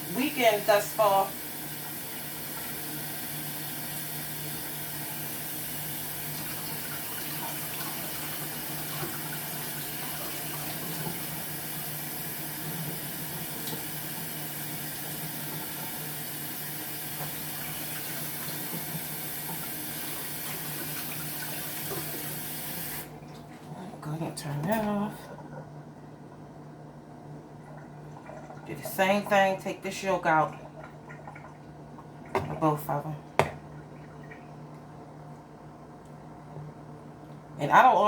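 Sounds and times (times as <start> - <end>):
faucet running into sink: 0.0 - 23.2.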